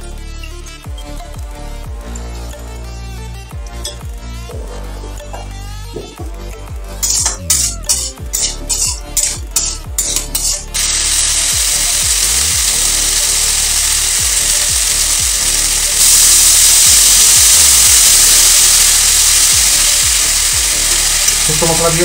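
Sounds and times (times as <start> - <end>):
vegetables sizzling in hot oil: 6.9 - 22.0.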